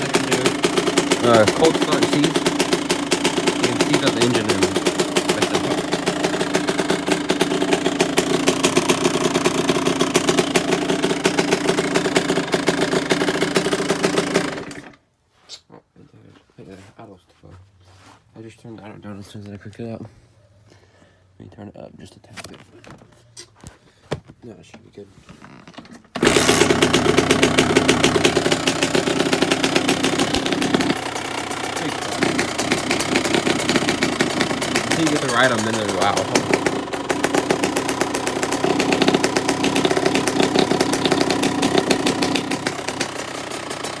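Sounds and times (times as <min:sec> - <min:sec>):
dirt bike engine idling: 0:00.0 - 0:15.0, 0:26.2 - 0:44.0.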